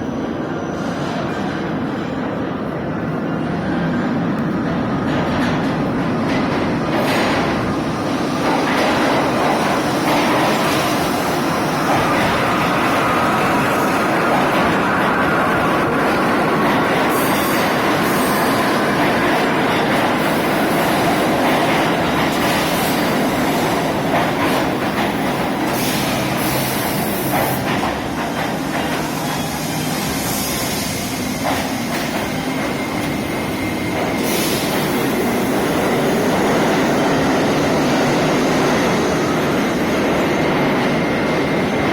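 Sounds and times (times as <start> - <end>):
steel wheels on rail: 3.5 - 41.9
high hissing or squealing: 28.9 - 35.5.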